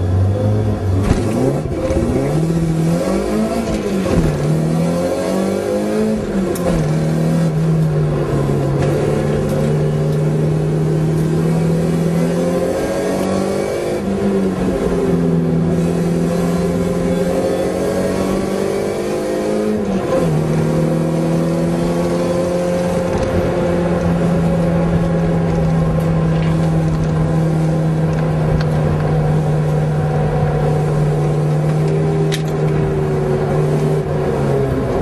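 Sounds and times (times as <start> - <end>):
car engine accelerating hard: 0.0 - 35.0.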